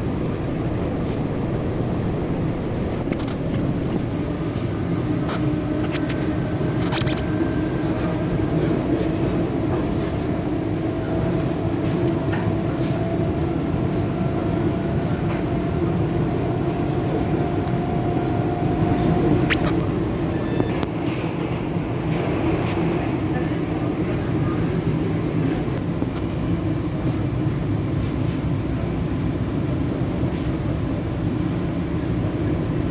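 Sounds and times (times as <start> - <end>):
electric motor hum: 0.0 - 4.2
sharp clicks: 0.0 - 4.2
train wheels rumbling on rail: 0.0 - 32.9.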